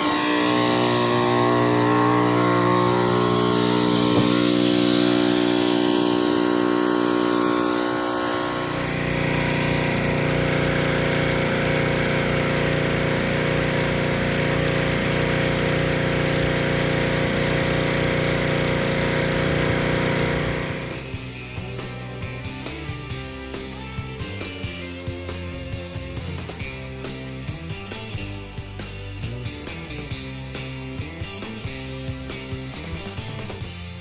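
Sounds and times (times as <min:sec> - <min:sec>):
pressure washer engine running: 0:00.0 - 0:21.4.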